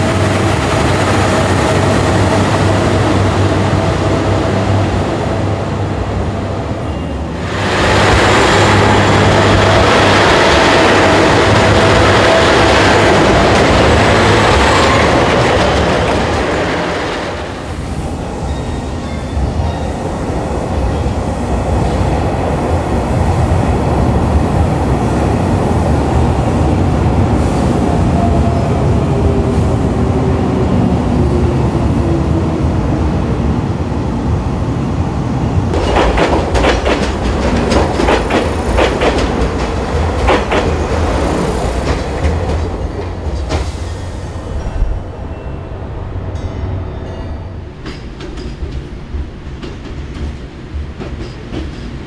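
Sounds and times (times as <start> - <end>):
falling train whine: 0.0 - 33.6
train rumbling past: 0.0 - 52.0
wheel clacks over rail joints: 35.8 - 41.0.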